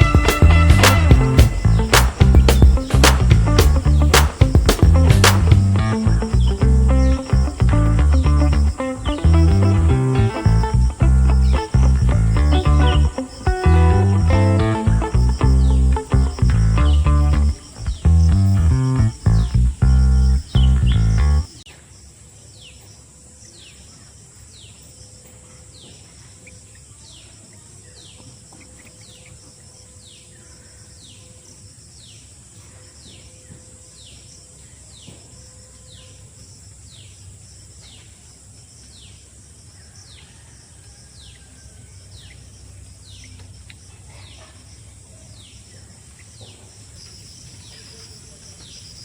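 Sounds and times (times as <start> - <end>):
high insect drone: 0.0 - 26.4, 45.7 - 49.0.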